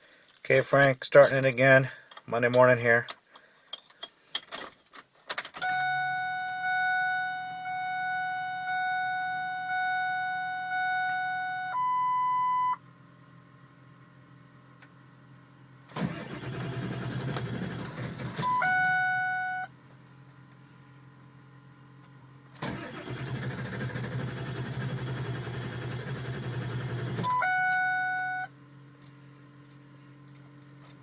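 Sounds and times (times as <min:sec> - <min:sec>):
dashboard warning chime: 0:05.6 - 0:12.8, 0:18.4 - 0:19.7, 0:27.2 - 0:28.5
engine cranking without starting: 0:15.9 - 0:18.6, 0:22.6 - 0:27.4.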